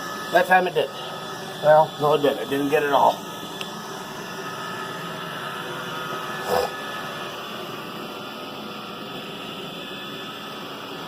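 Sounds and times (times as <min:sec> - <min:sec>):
robot vacuum whirring: 0:00.0 - 0:11.0.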